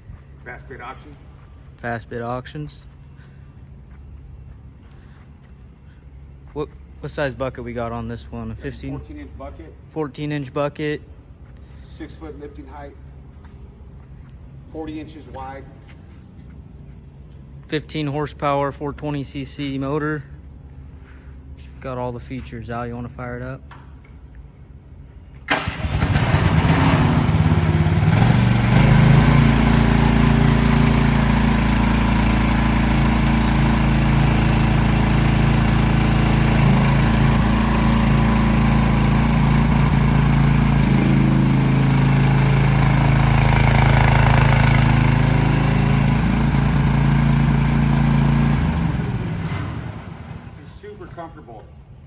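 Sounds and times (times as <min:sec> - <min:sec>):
small engine starting and running: 0:25.5 - 0:50.7.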